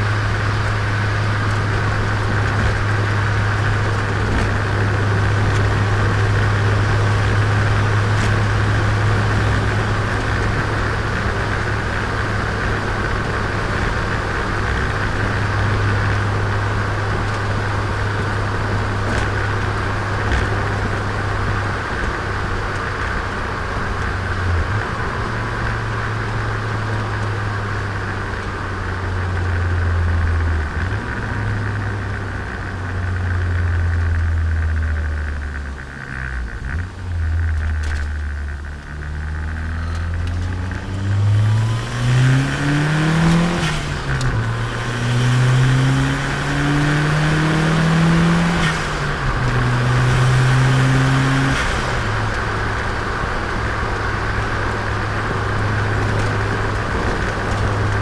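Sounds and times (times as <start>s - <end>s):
car engine droning: 0.0s - 58.0s.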